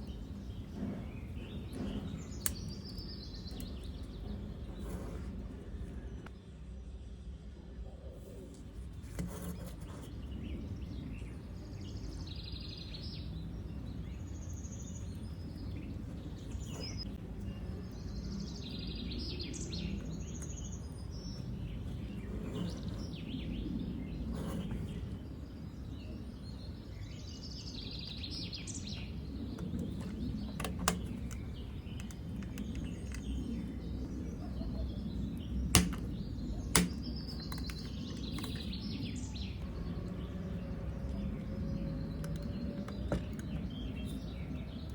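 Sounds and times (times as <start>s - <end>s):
birds chirping: 0.0s - 44.9s
low background rumble: 0.0s - 44.9s
sharp clicks or taps: 35.7s - 36.1s, 36.7s - 38.6s.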